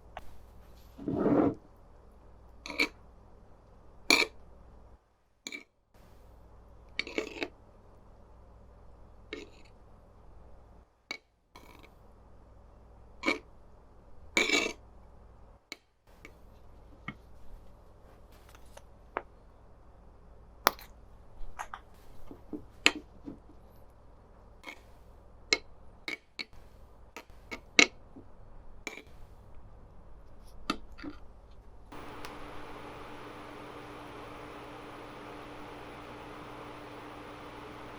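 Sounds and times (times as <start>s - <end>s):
low hum: 32.0s - 37.9s.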